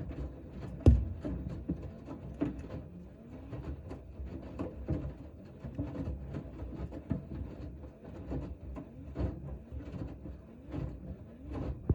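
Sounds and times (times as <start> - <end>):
washing machine drum knocks: 0.9 - 1.4.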